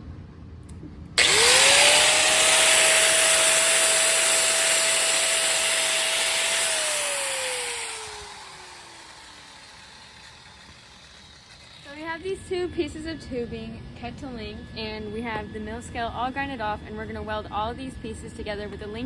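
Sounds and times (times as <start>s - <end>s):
angle grinder grinding steel: 1.2s - 12.2s.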